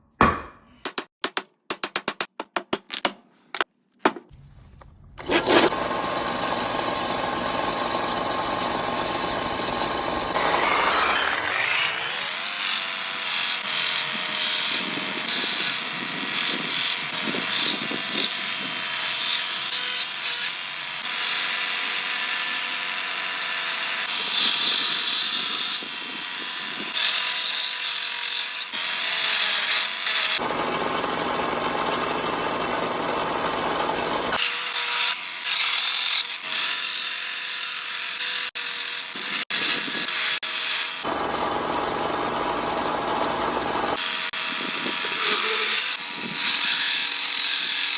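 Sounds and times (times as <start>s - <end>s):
tools scraping wood: 2.8s - 5.8s.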